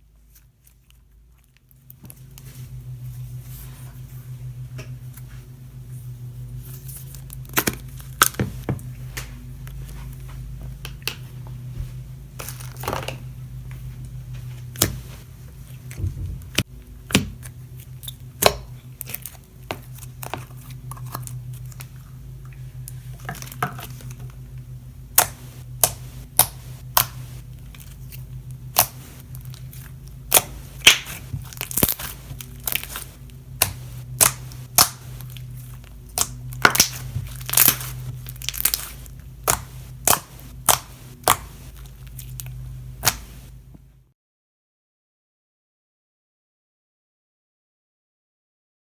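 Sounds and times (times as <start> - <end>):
steady low hum: 0.0 - 44.1
slime crinkly crunching: 14.1 - 24.5, 25.1 - 43.6
slime clicking and popping: 36.1 - 41.5.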